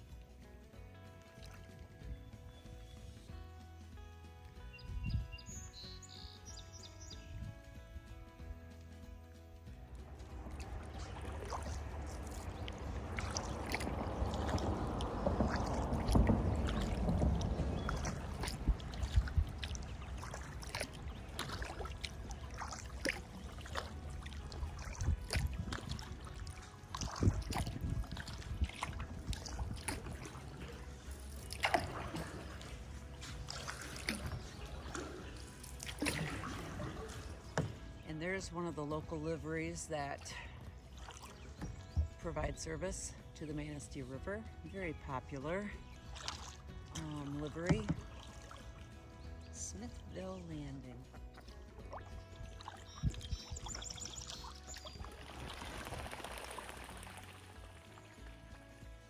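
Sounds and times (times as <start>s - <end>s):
paddle splashing water: 1.0s - 3.3s, 9.6s - 59.0s
water dripping: 9.6s - 38.5s, 45.2s - 50.2s, 50.9s - 58.6s
low rumble: 9.7s - 41.0s.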